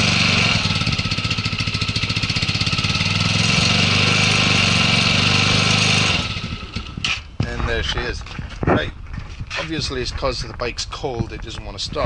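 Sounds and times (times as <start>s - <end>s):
motorcycle engine idling: 0.0s - 8.5s.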